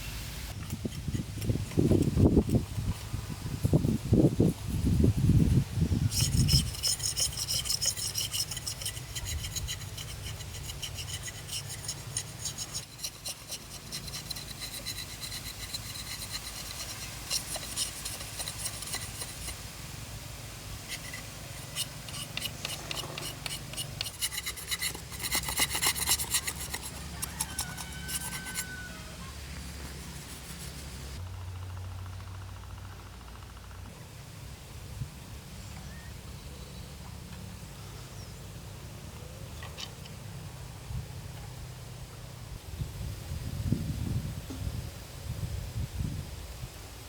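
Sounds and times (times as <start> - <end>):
rasping strokes on wood: 6.1 - 19.6, 20.9 - 31.2.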